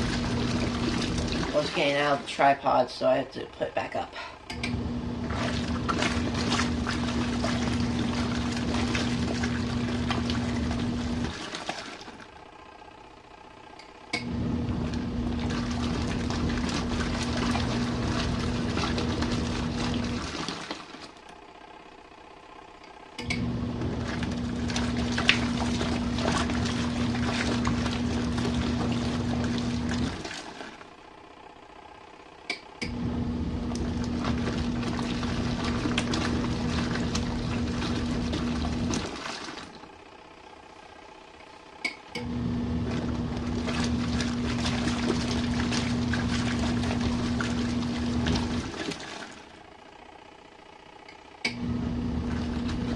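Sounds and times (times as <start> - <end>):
water sloshing: 0.0 - 2.9, 5.0 - 12.4, 14.3 - 21.3, 23.4 - 31.1, 33.0 - 39.9, 42.6 - 49.7, 51.6 - 52.9
washing machine motor humming: 0.0 - 52.9.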